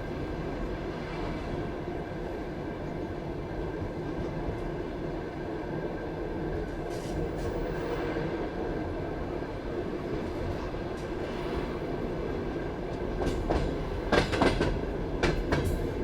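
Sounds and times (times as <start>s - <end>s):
train wheels rumbling on rails: 6.4s - 16.0s.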